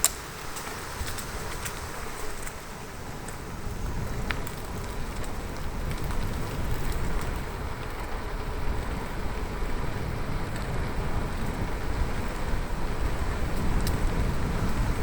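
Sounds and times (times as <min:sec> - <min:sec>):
tyres rolling on the road: 0:00.0 - 0:15.0
wind on the microphone: 0:00.0 - 0:15.0
light ticks: 0:04.2 - 0:08.1, 0:13.5 - 0:14.8.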